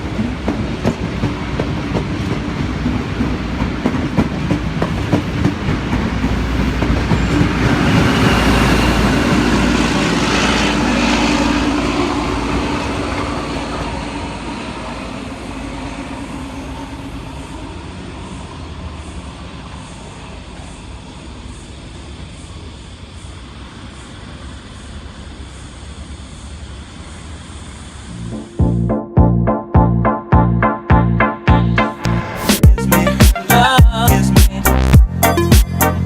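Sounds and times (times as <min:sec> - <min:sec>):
train running past: 0:00.0 - 0:29.1, 0:31.8 - 0:36.0.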